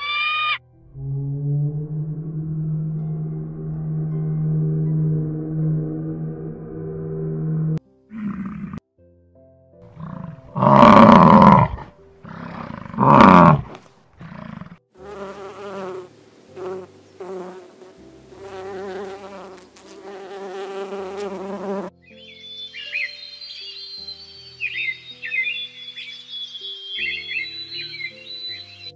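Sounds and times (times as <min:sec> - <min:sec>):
yak calling: 0:00.0 - 0:00.6
bumblebee buzzing: 0:15.0 - 0:21.9
high bird-like chirps: 0:22.0 - 0:28.9.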